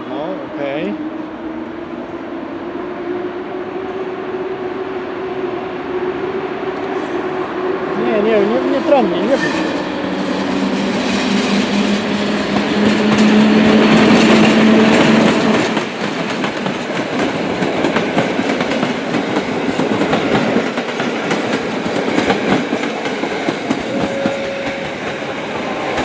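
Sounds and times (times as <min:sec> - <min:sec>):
train wheels clattering on track: 0:08.8 - 0:26.0.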